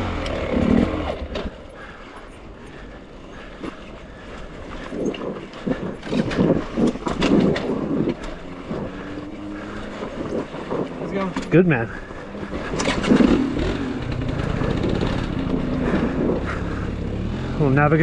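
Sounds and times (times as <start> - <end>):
dirt bike engine blipping: 5.8 - 18.0.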